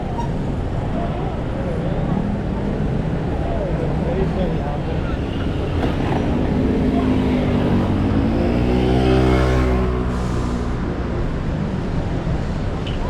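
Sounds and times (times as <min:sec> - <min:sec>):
street traffic: 0:00.0 - 0:13.0
vehicle passing by: 0:05.6 - 0:11.9.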